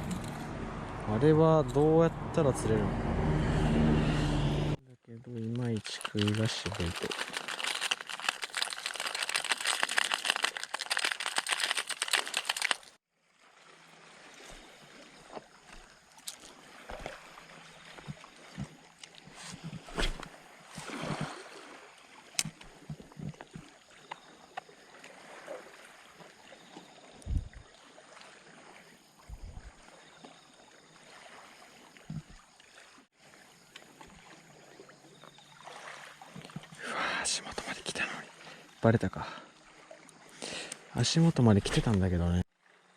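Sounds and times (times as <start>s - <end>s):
water splashing and churning: 5.3s - 36.8s, 39.4s - 42.9s
wind noise on microphone: 27.2s - 27.6s, 29.3s - 29.7s
steady water hiss: 35.7s - 42.1s.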